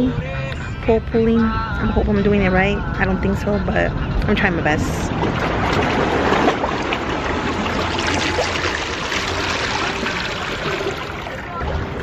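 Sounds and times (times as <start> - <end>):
seawater washing among rocks: 4.9 - 12.0.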